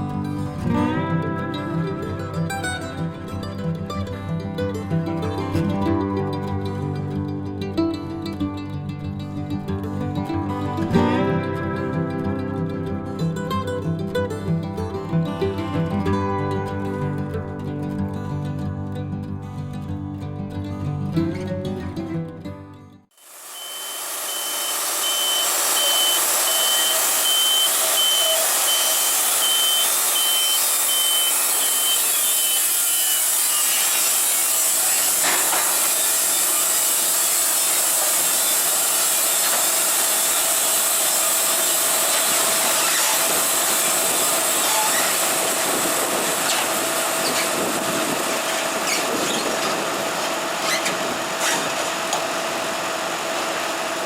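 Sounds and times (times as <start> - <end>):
band sawmill cutting log: 23.2 - 54.0
electronic beeps: 23.6 - 32.1.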